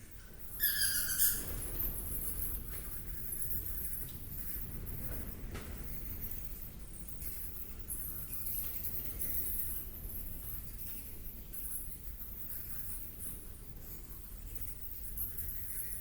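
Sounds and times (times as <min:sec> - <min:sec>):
high squeaky animal call: 0:00.6 - 0:01.5.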